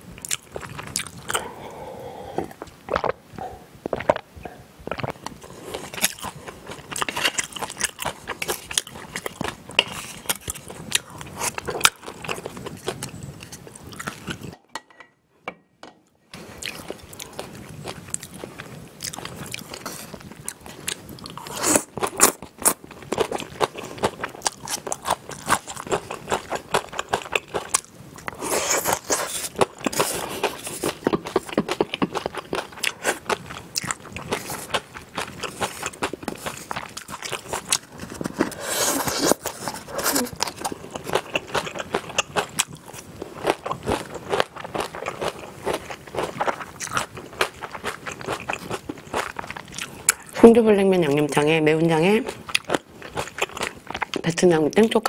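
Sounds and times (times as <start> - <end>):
chewing and crunching: 0.2 - 1.5, 4.9 - 14.6, 16.5 - 54.9.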